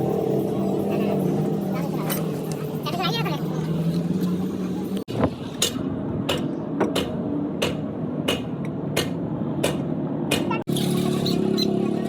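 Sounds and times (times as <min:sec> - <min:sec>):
workshop background noise: 0:00.0 - 0:12.0
hammer striking metal: 0:05.6 - 0:10.6.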